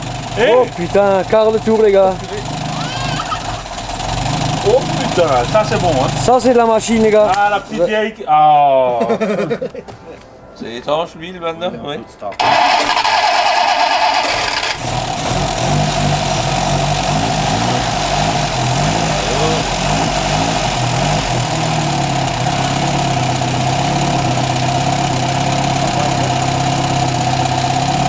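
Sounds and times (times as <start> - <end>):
car engine running unevenly then idling: 0.0 - 7.2, 12.4 - 28.0.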